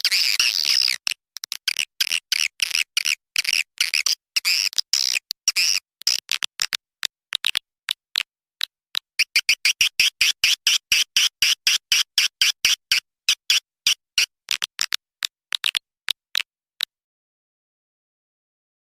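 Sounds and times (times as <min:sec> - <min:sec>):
swiftlet lure call chirps: 0:09.2 - 0:14.0.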